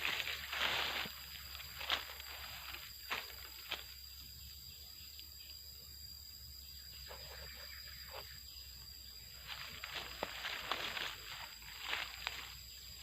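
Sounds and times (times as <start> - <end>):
rustling and scraping: 0.0 - 3.9, 9.4 - 12.6
high-pitched insect drone: 0.0 - 13.0.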